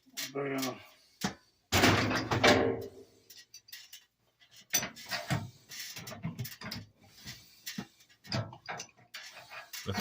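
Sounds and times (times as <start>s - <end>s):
metal clinks and knocks: 0.0s - 7.0s
metal tools clattering: 1.8s - 6.9s.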